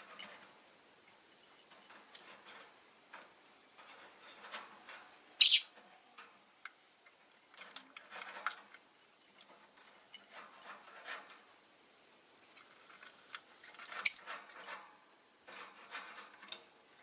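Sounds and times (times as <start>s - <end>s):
loud high bird call: 5.4s - 5.7s
lovebirds chirping: 5.4s - 5.7s, 14.0s - 14.3s.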